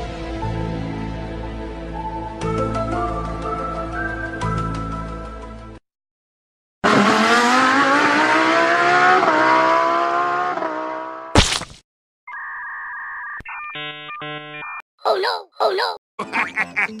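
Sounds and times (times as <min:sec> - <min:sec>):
engine revving: 0:06.8 - 0:11.3.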